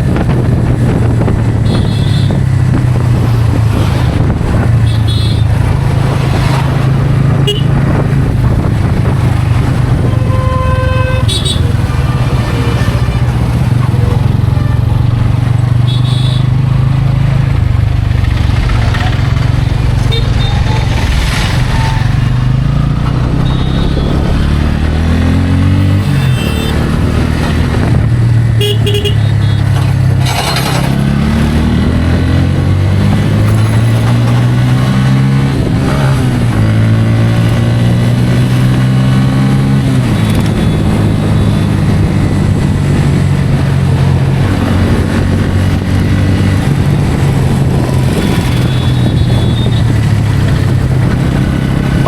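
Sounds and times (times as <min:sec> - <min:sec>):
motorcycle engine revving: 0:00.0 - 0:52.0
horn toots: 0:01.6 - 0:02.4, 0:04.8 - 0:05.6, 0:07.4 - 0:08.0, 0:09.9 - 0:13.4, 0:15.8 - 0:16.6, 0:23.4 - 0:24.3, 0:25.8 - 0:27.0, 0:28.5 - 0:29.8, 0:48.1 - 0:50.0.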